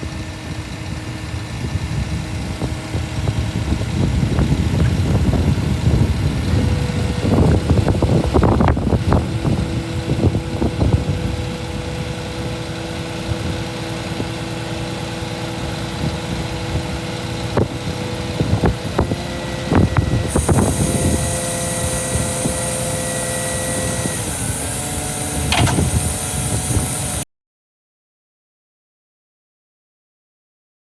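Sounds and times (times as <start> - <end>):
diesel engine idling: 0.0 - 27.2
whining tones: 0.1 - 27.2
knocks and clunks: 25.4 - 26.1.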